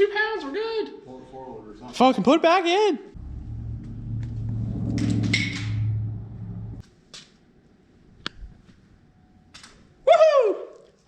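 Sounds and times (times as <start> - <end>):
machine motor humming: 3.2 - 6.8.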